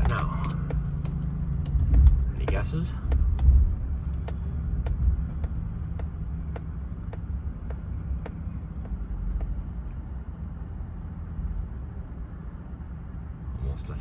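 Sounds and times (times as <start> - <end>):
even ticking: 0.0 - 10.1
vehicle engine idling: 0.0 - 14.0.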